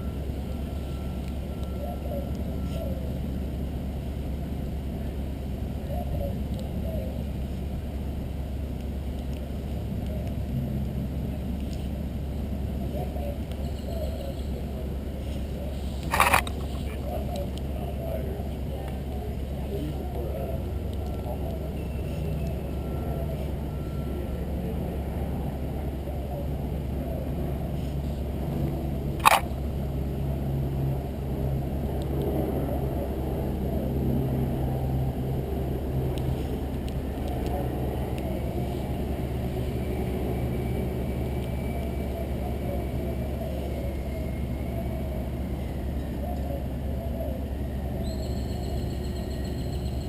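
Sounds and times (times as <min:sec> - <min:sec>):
low outdoor rumble: 0:00.0 - 0:50.0
sharp click: 0:29.2 - 0:29.5.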